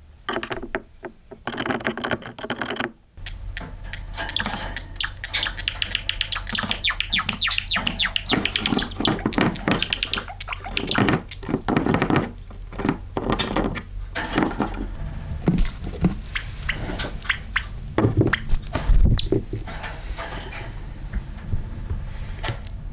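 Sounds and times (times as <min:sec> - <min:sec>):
sparrow singing: 0:03.2 - 0:11.9, 0:16.2 - 0:19.7.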